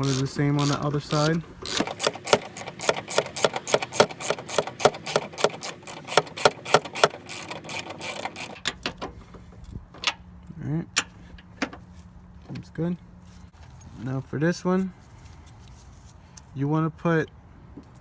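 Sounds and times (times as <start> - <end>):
ratchet wrench clicking: 0.0 - 8.8.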